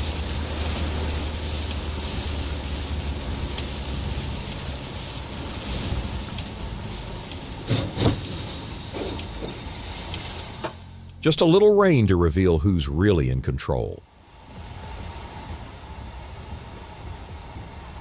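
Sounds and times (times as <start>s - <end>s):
vehicle road noise hum: 0.0s - 18.0s.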